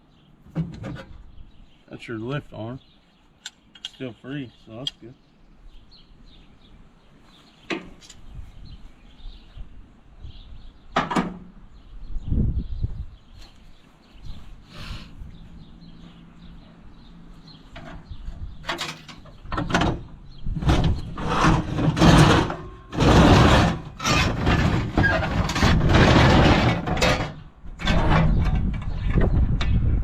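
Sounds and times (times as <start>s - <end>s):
metal parts scraping and clattering: 18.7s - 19.4s, 20.6s - 28.8s.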